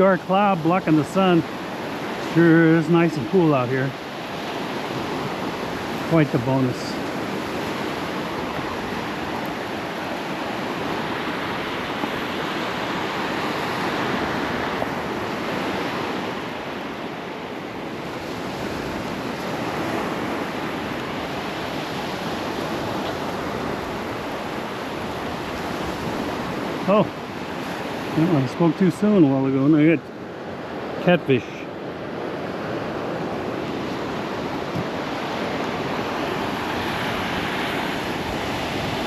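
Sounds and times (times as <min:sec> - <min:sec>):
surf breaking on beach: 0:00.0 - 0:39.0.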